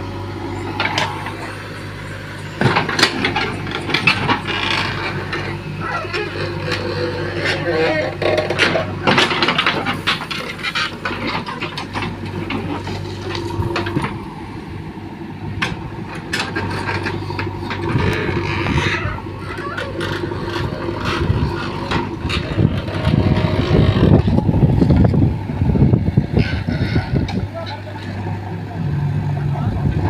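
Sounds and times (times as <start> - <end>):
heavy diesel machinery engines: 0.0 - 30.0
knocks and clatter: 2.5 - 14.2, 15.6 - 25.2.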